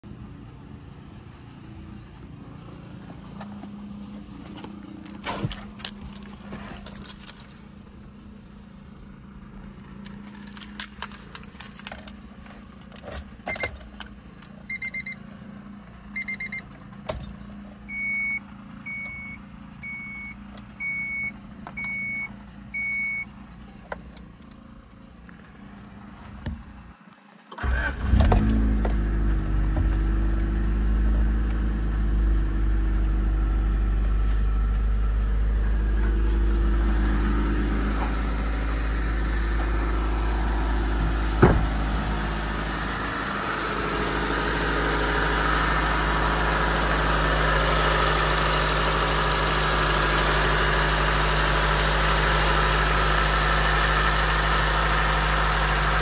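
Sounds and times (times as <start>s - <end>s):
car engine starting and idling: 0.0s - 56.0s
keys jangling: 5.5s - 7.6s, 10.0s - 14.1s
dashboard warning chime beeping: 14.7s - 15.2s, 16.2s - 16.7s, 17.9s - 23.3s.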